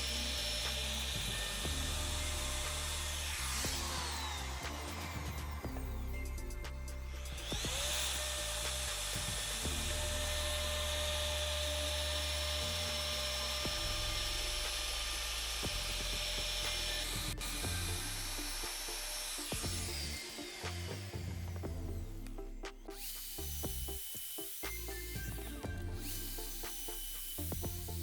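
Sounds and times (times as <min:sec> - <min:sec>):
background music: 0:00.0 - 0:28.0
wood milling tool whining: 0:00.0 - 0:28.0.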